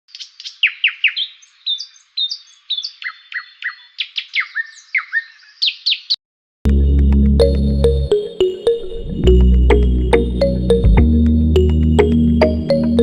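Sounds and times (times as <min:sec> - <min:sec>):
bird chirping: 0:00.1 - 0:06.2.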